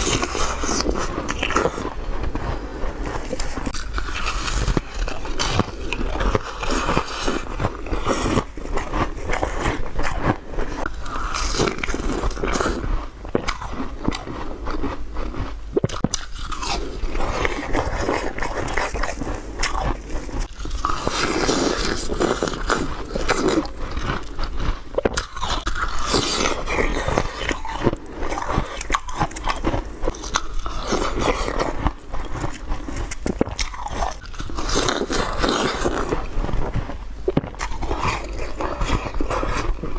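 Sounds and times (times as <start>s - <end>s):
ice crunching between teeth: 0.0s - 39.9s.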